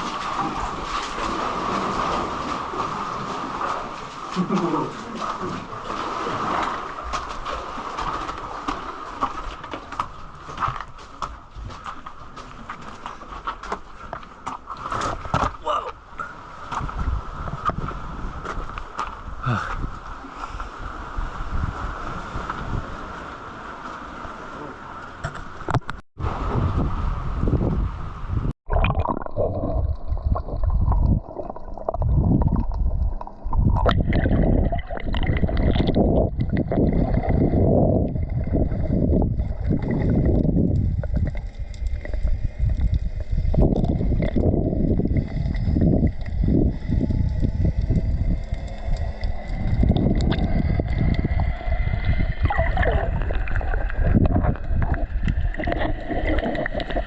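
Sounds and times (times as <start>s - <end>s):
water sloshing and gurgling: 0.0s - 57.0s
wind noise on microphone: 16.6s - 23.3s, 25.6s - 57.0s.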